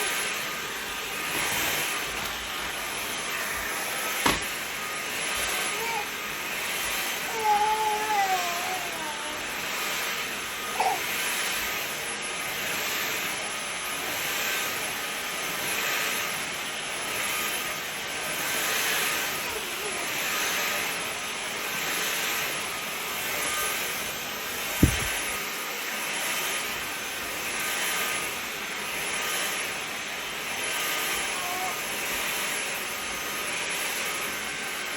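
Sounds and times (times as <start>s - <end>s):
vacuum cleaner running: 0.0s - 34.9s
short thump: 24.8s - 25.2s.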